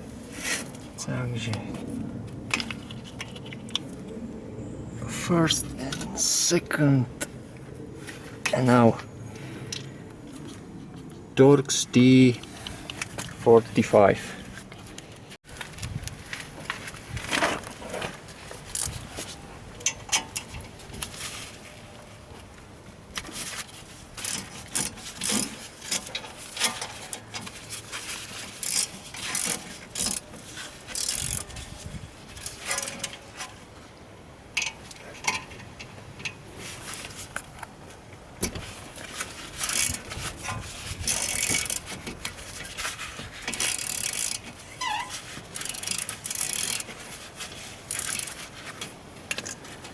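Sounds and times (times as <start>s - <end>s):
steel clinking and scraping on steel: 32.3s - 33.7s.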